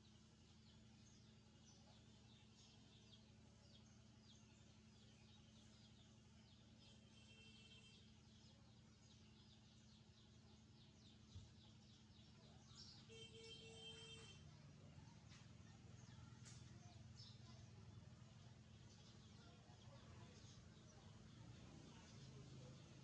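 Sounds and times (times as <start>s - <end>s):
young birds chirping: 0.0s - 23.0s.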